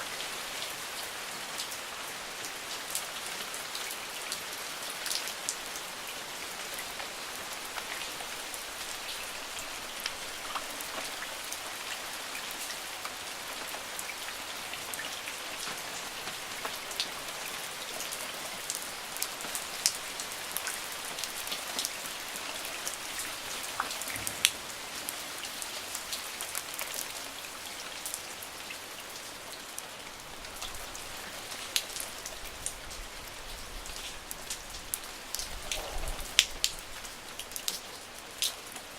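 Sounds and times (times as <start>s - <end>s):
steady rain hiss: 0.0s - 38.9s
raindrops ticking: 6.8s - 27.2s, 30.4s - 38.9s.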